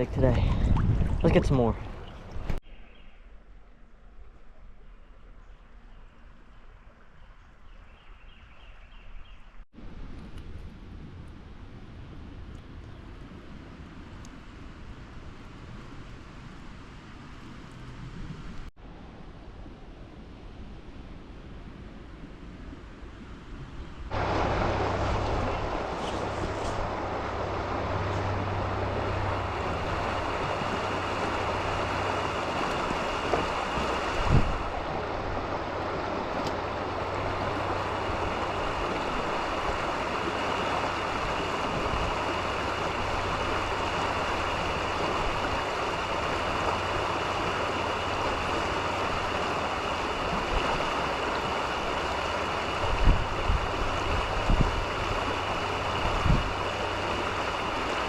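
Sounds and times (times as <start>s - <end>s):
creek water rushing: 0.0s - 2.6s, 24.0s - 58.0s.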